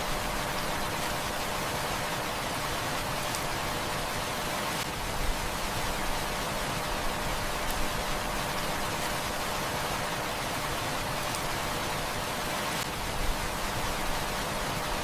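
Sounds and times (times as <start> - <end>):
heavy rain falling: 0.0 - 15.0
wood fire crackling: 3.1 - 14.2.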